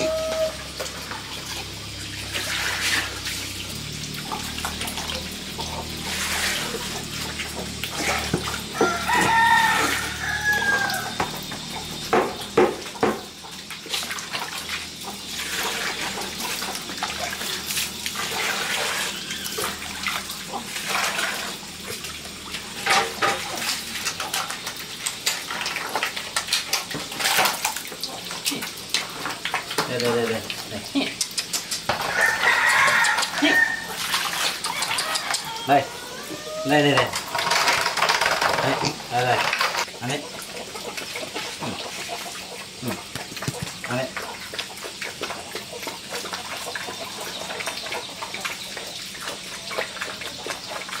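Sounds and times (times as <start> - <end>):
chicken calling: 0.0 - 0.7, 34.6 - 37.0
water splashing and sloshing: 0.0 - 51.0.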